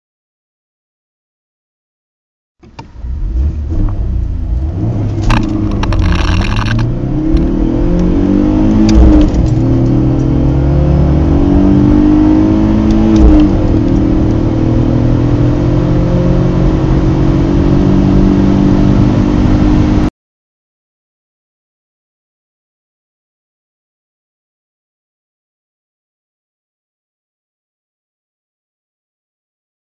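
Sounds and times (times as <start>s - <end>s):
car engine accelerating: 2.6s - 20.1s.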